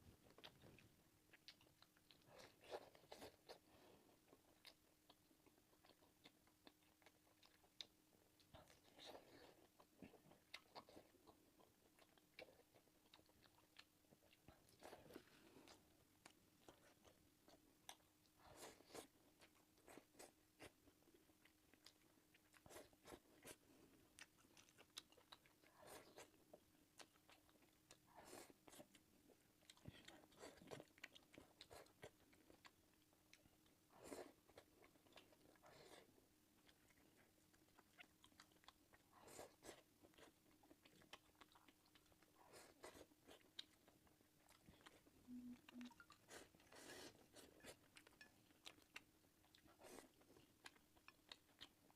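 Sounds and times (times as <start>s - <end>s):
faint steady hum: 0.0s - 51.9s
chewing and biting: 0.2s - 51.9s.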